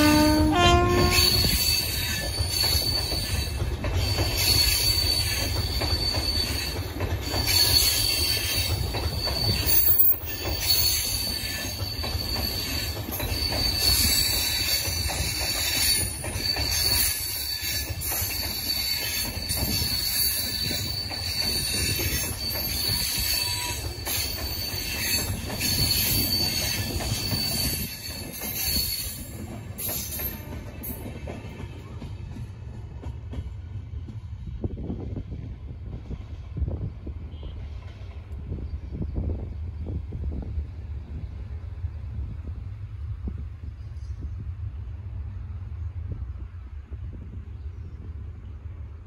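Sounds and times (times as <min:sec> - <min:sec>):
wheels clicking over rail joints: 0:00.0 - 0:33.5
train wheels rumbling on rails: 0:00.0 - 0:49.0.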